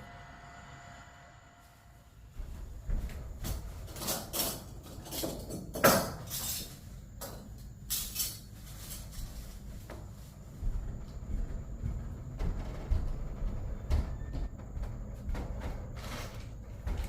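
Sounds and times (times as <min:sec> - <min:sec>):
low steady rumble: 0:10.2 - 0:17.0.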